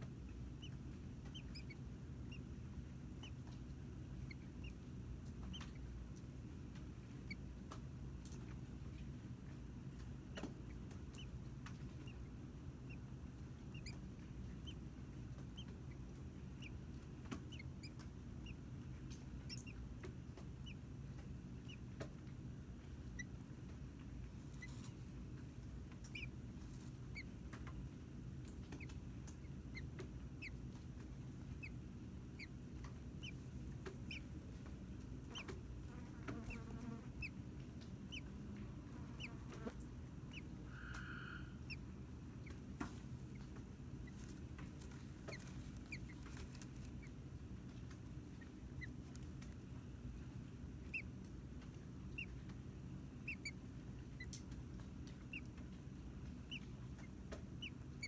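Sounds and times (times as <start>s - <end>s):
low hum and hiss: 0.0s - 58.0s
small birds peeping: 0.0s - 58.0s.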